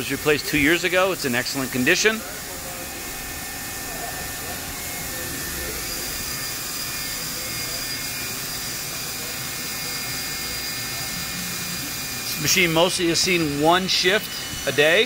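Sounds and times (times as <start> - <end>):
faint steady whining tones: 0.0 - 15.0
higher whine: 1.4 - 9.6.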